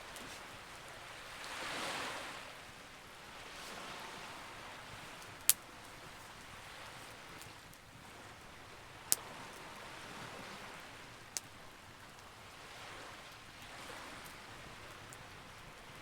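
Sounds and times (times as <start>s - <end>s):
soft hiss of noise: 0.0s - 16.0s.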